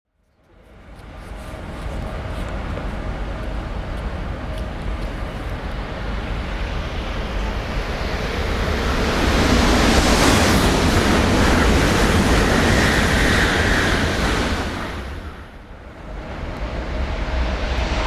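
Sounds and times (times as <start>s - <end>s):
high-speed train rushing past: 0.6s - 18.0s.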